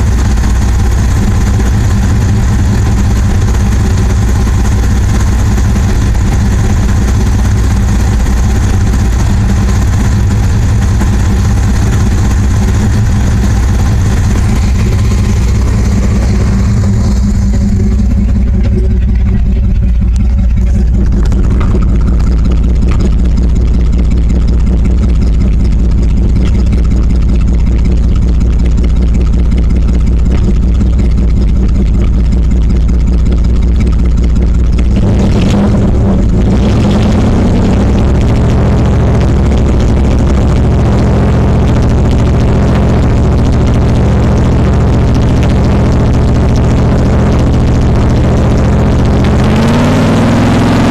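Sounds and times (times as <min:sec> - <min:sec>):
raspy truck engine idling: 0:00.0 - 0:50.9.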